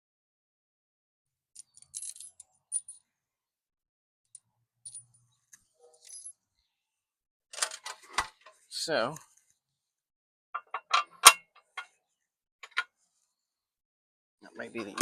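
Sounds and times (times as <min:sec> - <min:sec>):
faint handling clicks and clinks: 0:01.6 - 0:03.1, 0:04.3 - 0:06.4.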